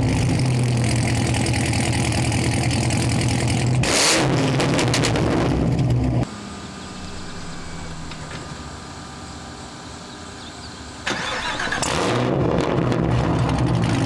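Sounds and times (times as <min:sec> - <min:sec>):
car engine idling loudly: 0:00.0 - 0:03.8, 0:05.8 - 0:12.0
quiet engine hum: 0:05.7 - 0:12.0.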